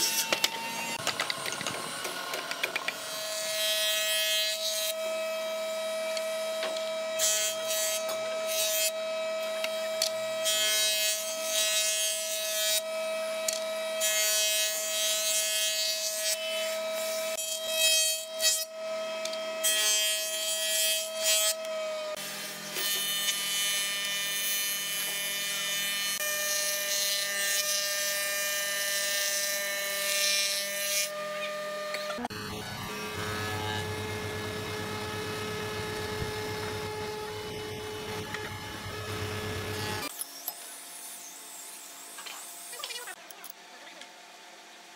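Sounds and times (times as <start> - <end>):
planing machine whining: 0.0 - 12.0, 30.9 - 40.1.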